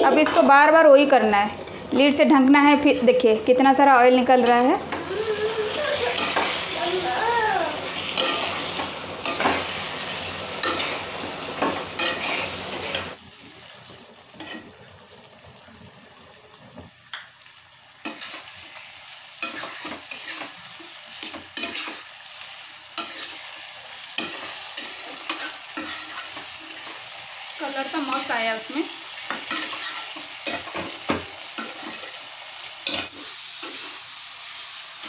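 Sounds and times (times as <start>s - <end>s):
curry sizzling in oil: 4.3s - 35.0s
spatula scraping a pan: 8.1s - 13.2s, 14.4s - 14.7s, 18.0s - 18.8s, 19.4s - 22.1s, 23.0s - 27.0s, 29.2s - 32.2s.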